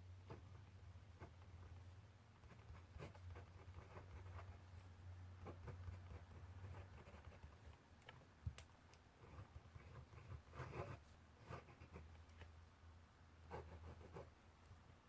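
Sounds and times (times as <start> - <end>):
pen scratching on paper: 0.2 - 4.8, 5.4 - 7.8, 9.2 - 12.1, 13.5 - 14.3.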